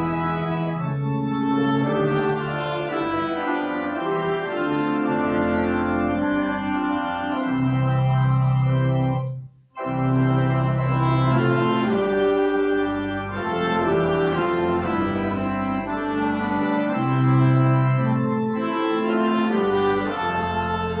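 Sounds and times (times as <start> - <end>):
church organ chords: 0.0 - 21.0.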